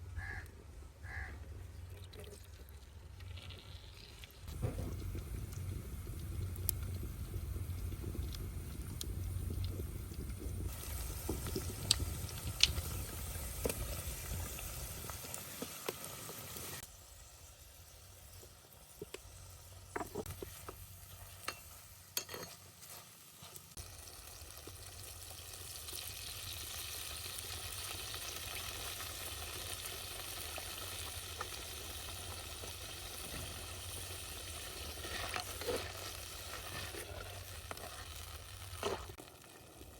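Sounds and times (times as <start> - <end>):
chicken wings sizzling: 3.2 - 39.9.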